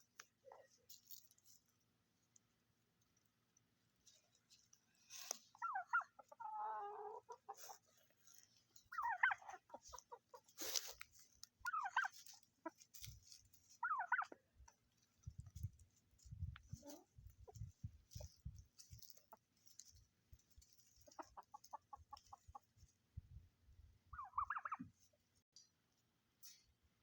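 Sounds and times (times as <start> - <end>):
turkeys calling: 5.1 - 14.5, 20.6 - 22.8, 24.1 - 25.0
rattling gobble: 5.5 - 7.9, 8.8 - 10.7, 11.6 - 12.9, 13.7 - 14.4, 21.0 - 22.7, 24.2 - 25.0.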